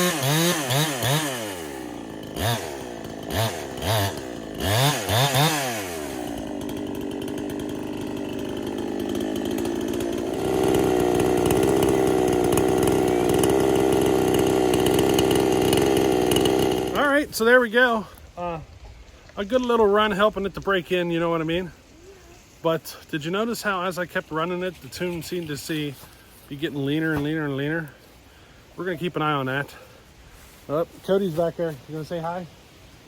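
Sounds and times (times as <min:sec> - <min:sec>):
chainsaw revving: 0:00.0 - 0:17.3.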